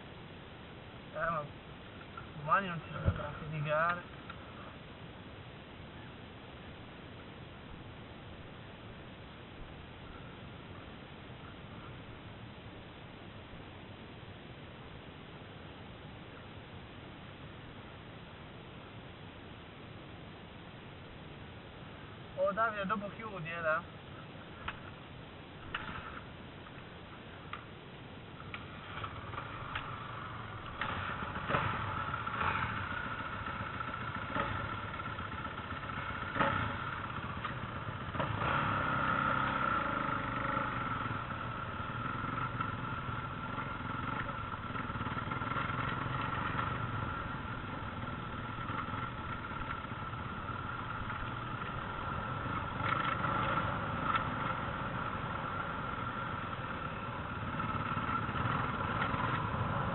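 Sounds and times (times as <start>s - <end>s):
motocross motorcycle engine running: 25.7s - 26.4s, 28.4s - 59.9s.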